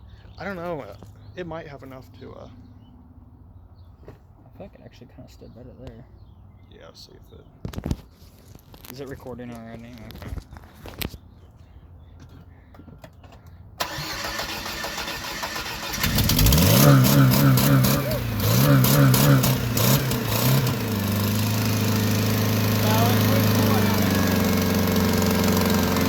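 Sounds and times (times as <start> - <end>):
engine starting revving and idling: 13.8 - 26.0.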